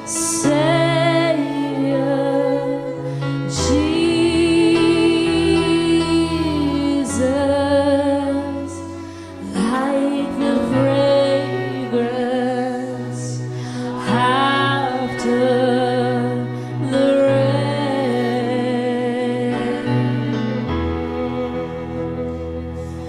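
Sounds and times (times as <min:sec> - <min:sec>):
instrumental accompaniment: 0:00.0 - 0:23.0.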